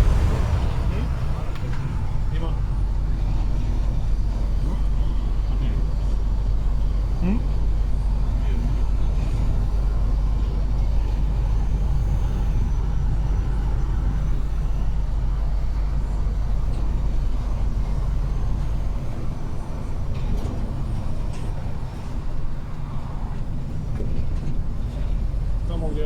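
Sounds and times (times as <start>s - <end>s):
road noise: 0.0s - 6.3s
truck engine rumble: 0.0s - 26.0s.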